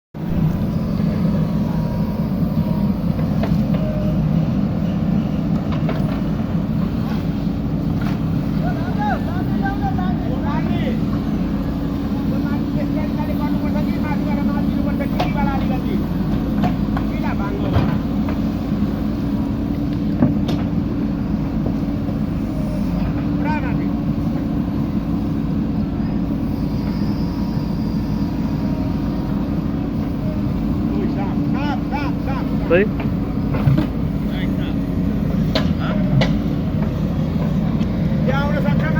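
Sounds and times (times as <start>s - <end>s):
backhoe diesel engine running: 0.1s - 38.9s
faint high whine: 0.2s - 5.4s, 26.0s - 29.6s.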